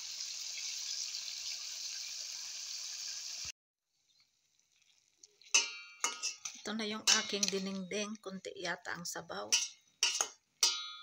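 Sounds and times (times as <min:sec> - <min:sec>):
fish frying in hot oil: 0:00.0 - 0:08.1.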